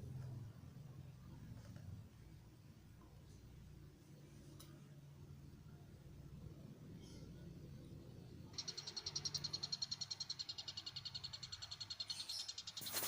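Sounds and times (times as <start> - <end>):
bird chick chattering: 8.6 - 13.0.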